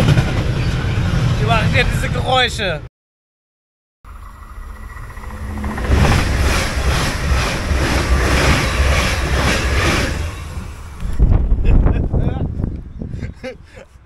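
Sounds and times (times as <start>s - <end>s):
train passing at high speed: 0.0s - 2.3s, 4.1s - 11.9s
wheels clattering over rails: 4.8s - 11.2s.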